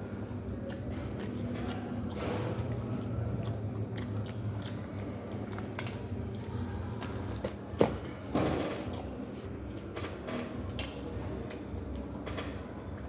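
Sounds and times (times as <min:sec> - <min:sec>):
person chewing and crunching: 0:00.0 - 0:09.8
steady low hum: 0:00.0 - 0:13.0.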